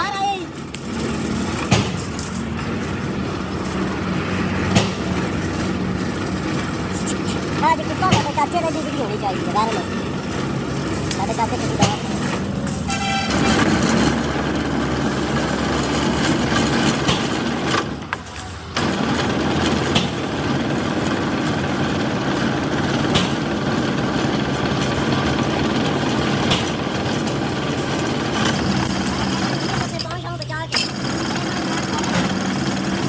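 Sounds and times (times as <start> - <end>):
motor humming: 0.0 - 18.1, 18.7 - 33.0.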